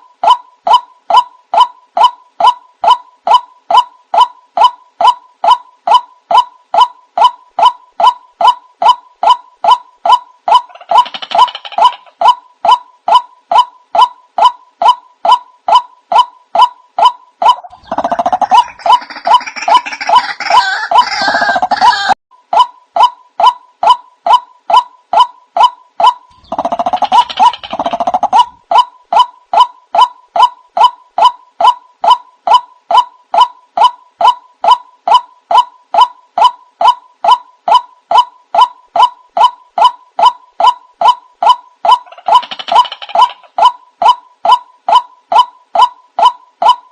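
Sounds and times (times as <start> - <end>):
waterhen calls: 0.0 - 23.6, 26.0 - 46.8
harsh chorus of bird calls: 17.5 - 22.2, 26.3 - 28.8.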